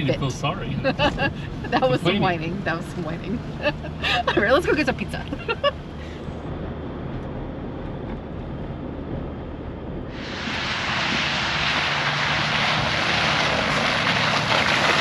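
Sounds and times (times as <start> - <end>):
vehicle engine drone: 0.0 - 15.0
loud rushing hiss: 10.1 - 13.3.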